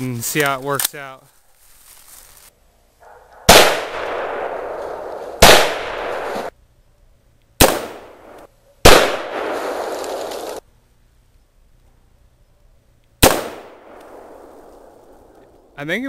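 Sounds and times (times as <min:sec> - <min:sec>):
rifle shots with echo: 0:03.4 - 0:06.5, 0:07.6 - 0:10.6, 0:13.2 - 0:15.3.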